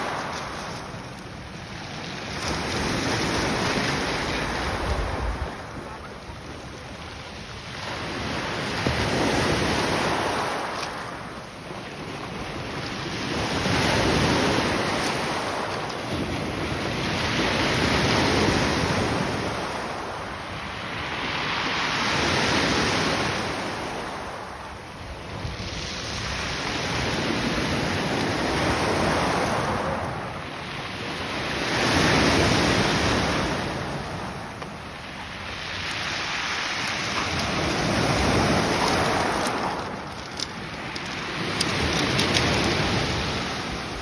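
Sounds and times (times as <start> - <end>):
wind buffeting microphone: 0.0 - 7.4, 32.8 - 44.0
waves breaking: 0.0 - 44.0.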